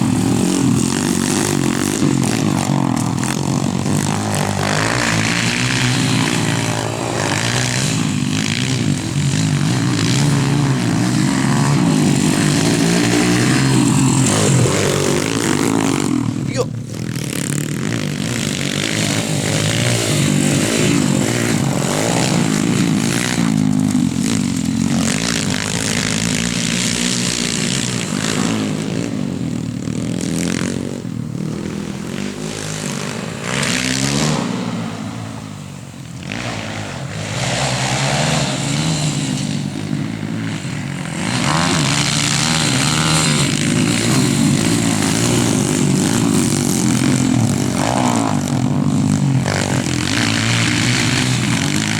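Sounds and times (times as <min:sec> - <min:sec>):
pit bike engine revving: 0:00.0 - 0:51.9.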